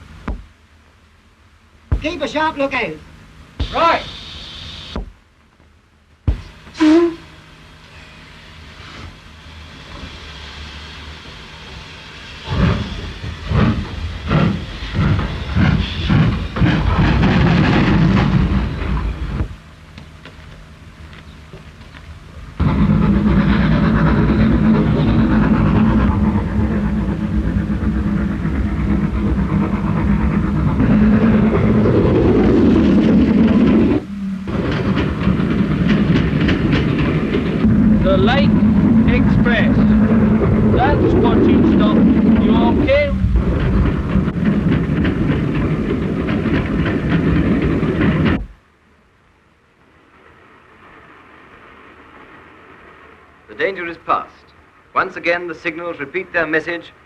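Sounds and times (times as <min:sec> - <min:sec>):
locomotive exhaust beats: 0:00.0 - 0:07.9, 0:08.6 - 0:56.7
rapid rhythmic train clatter: 0:01.8 - 0:05.3, 0:07.6 - 0:48.8
steam locomotive hissing: 0:02.0 - 0:05.0, 0:06.3 - 0:19.8, 0:22.2 - 0:48.4.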